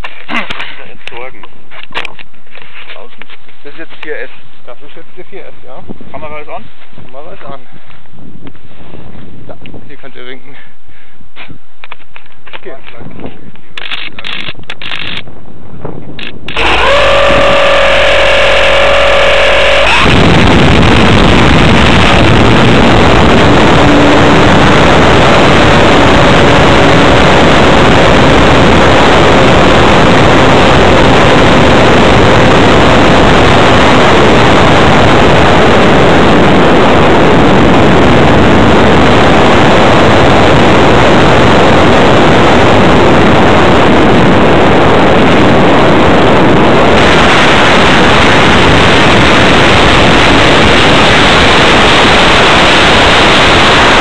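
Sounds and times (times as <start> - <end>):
distorted electric motor and propeller: 13.8 - 15.3, 16.2 - 54.0
rushing airflow: 15.2 - 54.0.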